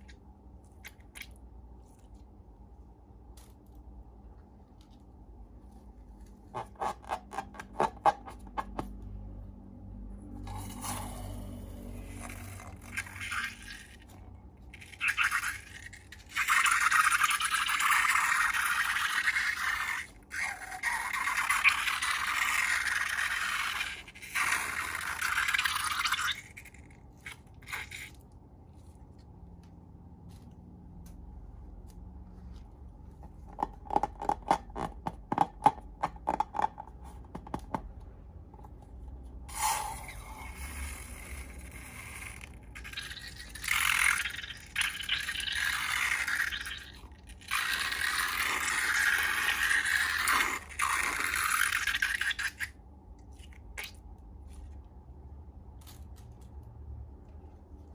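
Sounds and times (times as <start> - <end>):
slime being scraped: 6.2 - 8.5, 10.5 - 29.2, 39.5 - 52.7.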